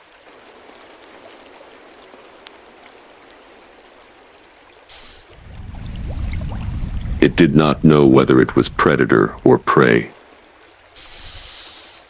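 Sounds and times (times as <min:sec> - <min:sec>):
running water rushing: 0:00.0 - 0:12.0
drip-like ticks: 0:00.3 - 0:05.4
burst of hiss: 0:04.9 - 0:05.4, 0:11.0 - 0:12.0.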